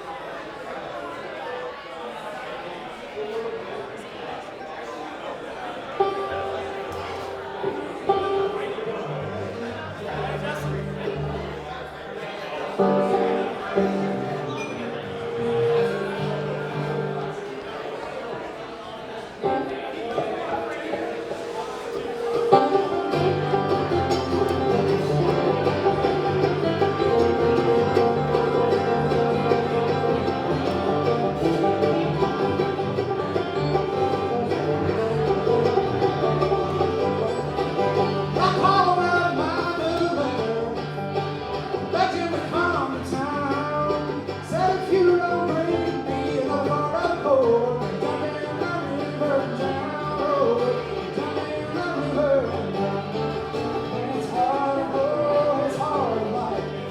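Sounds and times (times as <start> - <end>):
bluegrass band playing: 4.8 - 56.9
walking bass: 19.5 - 56.9
sliding bending melody line: 21.3 - 43.6.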